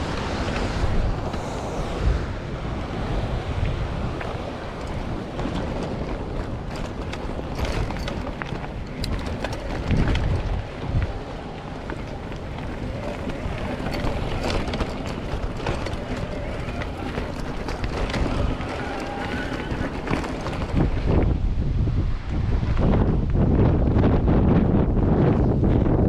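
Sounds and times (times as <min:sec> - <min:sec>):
wind buffeting microphone: 0:00.0 - 0:26.0
bike clicks and rattles: 0:03.1 - 0:21.4.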